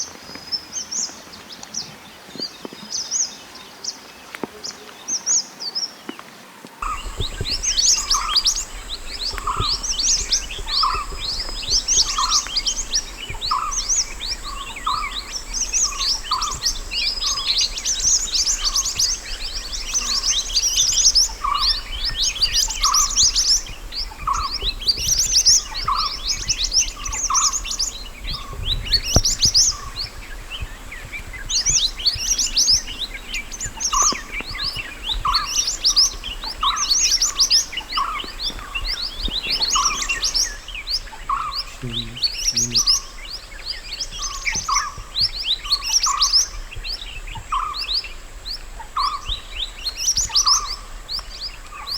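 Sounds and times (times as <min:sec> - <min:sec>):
bird chirping rapidly: 0:06.8 - 0:43.4
lower single bird notes: 0:06.8 - 0:44.9.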